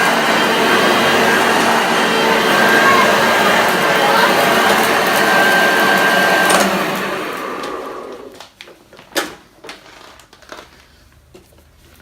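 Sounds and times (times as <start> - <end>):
vacuum cleaner whining: 0.0 - 8.4.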